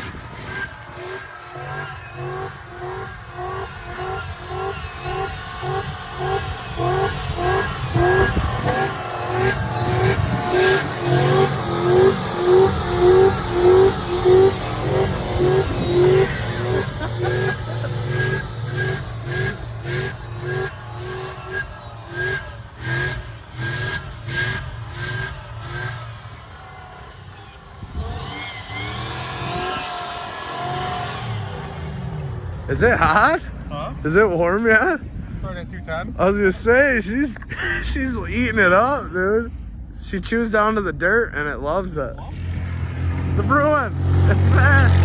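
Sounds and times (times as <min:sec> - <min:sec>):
truck engine revving hard: 0:00.0 - 0:35.4, 0:36.2 - 0:40.5, 0:42.2 - 0:45.0.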